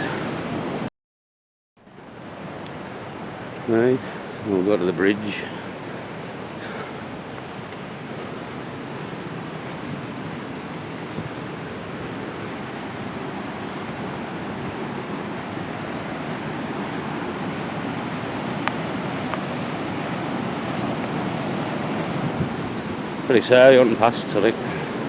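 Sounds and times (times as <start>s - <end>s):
waterfall rushing: 0.0s - 0.9s, 1.9s - 25.0s.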